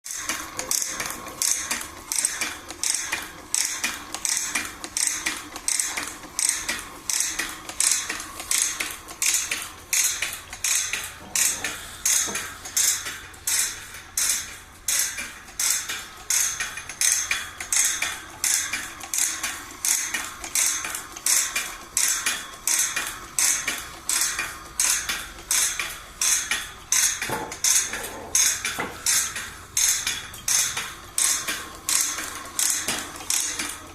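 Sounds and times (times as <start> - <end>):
tooth-setting machine clicking: 0.2 - 33.9.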